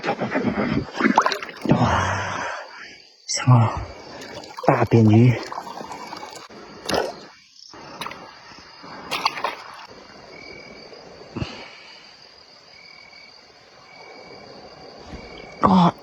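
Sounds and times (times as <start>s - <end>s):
crickets trilling: 0.0s - 16.0s
faint stream: 0.0s - 16.0s
knocks or splashes: 0.9s - 2.0s, 4.0s - 7.3s, 8.0s - 8.3s, 9.0s - 10.1s.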